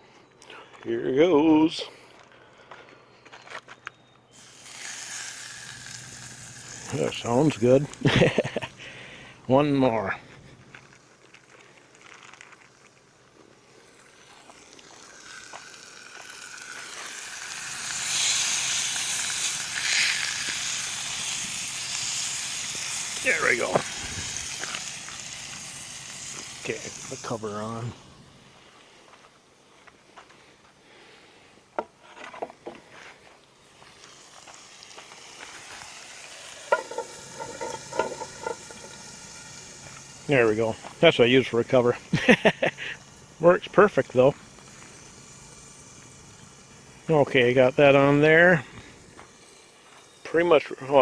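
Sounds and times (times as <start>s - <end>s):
meat sizzling in a skillet: 4.4s - 9.2s, 10.8s - 28.2s, 33.6s - 51.0s
metal pan cover clanking: 36.7s - 38.7s.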